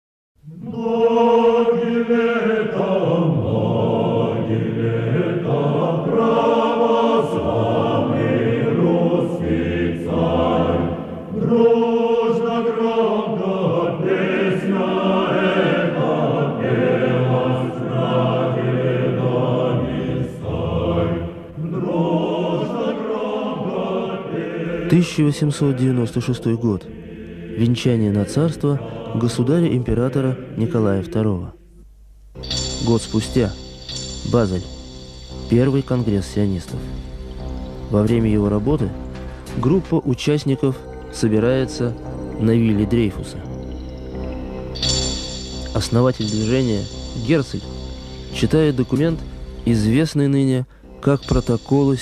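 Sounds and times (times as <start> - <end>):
choir singing a slow chant: 0.4 - 31.6.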